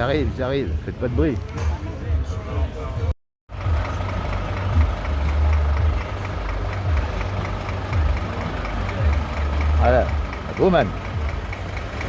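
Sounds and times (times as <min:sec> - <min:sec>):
diesel truck engine idling: 0:03.5 - 0:12.0.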